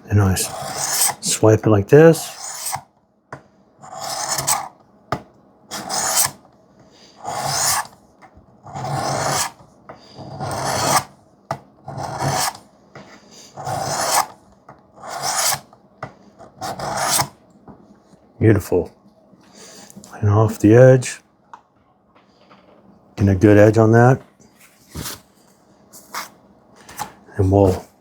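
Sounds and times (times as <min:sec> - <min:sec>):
sharpening stone rasping on blade: 0:00.5 - 0:01.2, 0:02.3 - 0:02.8, 0:13.6 - 0:14.3, 0:15.0 - 0:15.6.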